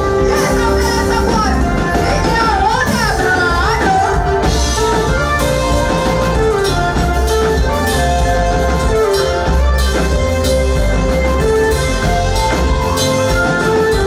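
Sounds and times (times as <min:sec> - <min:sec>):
bass: 0:00.0 - 0:14.0
drums: 0:00.0 - 0:14.0
instrumental praise music: 0:00.0 - 0:14.0.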